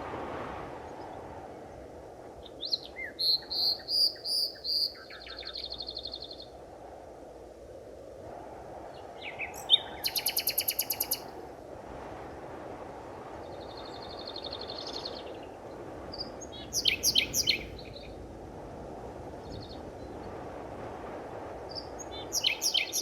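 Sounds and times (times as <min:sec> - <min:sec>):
forest birds calling: 0:02.5 - 0:06.5, 0:09.2 - 0:11.2, 0:16.2 - 0:18.1, 0:22.0 - 0:23.0
bird trill: 0:03.2 - 0:06.2, 0:09.6 - 0:11.2, 0:16.6 - 0:17.7, 0:22.3 - 0:23.0.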